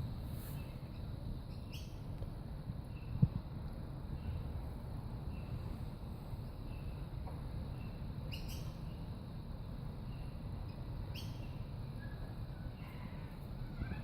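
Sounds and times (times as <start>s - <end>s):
faint bird chirps: 0.4s - 2.1s, 2.9s - 3.3s, 7.7s - 9.1s, 10.0s - 14.0s.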